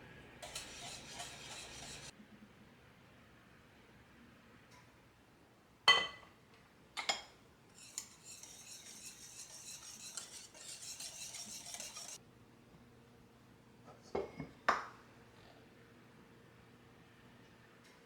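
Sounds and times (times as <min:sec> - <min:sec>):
hissy scraping: 0:00.4 - 0:02.1
kitchenware clinking: 0:00.4 - 0:02.1, 0:05.9 - 0:06.3, 0:07.0 - 0:12.2.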